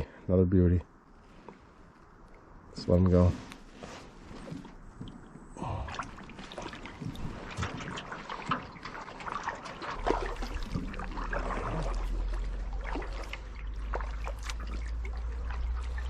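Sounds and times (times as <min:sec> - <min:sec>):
low steady rumble: 0:00.0 - 0:16.0
water trickling and dripping: 0:04.4 - 0:16.0.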